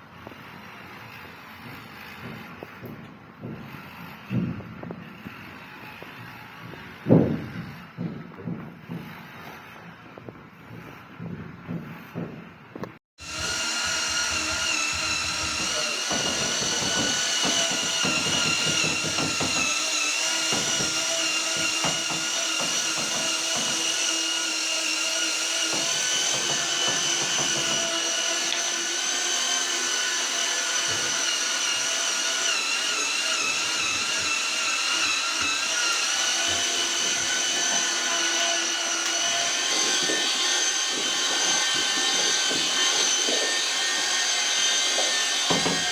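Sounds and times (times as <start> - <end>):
power tool motor whining: 13.2 - 45.9.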